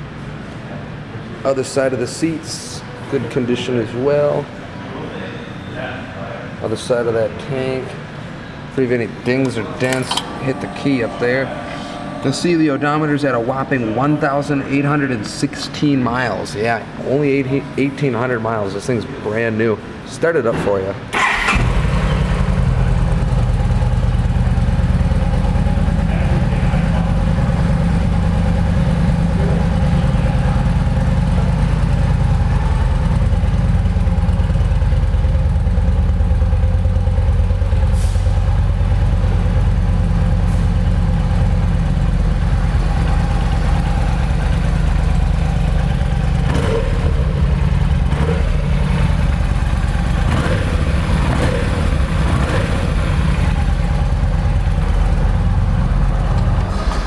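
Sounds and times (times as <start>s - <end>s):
motorcycle engine starting and idling: 9.4s - 11.3s, 21.1s - 57.0s.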